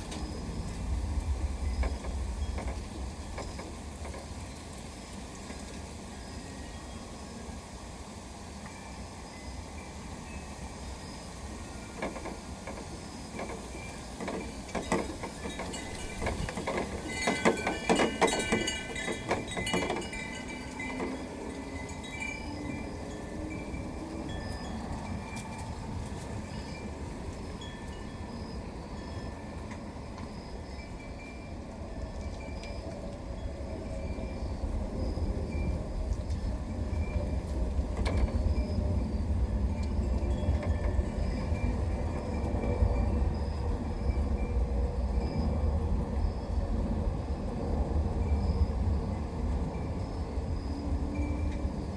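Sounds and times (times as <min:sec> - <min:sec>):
train rumbling past: 0:00.0 - 0:51.9
wind chimes ringing: 0:15.4 - 0:29.6.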